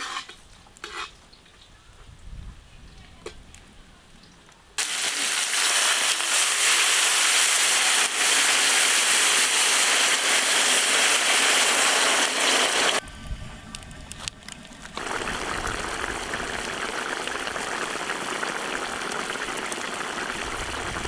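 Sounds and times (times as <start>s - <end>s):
hot oil sizzling: 4.8s - 13.0s, 15.0s - 21.0s.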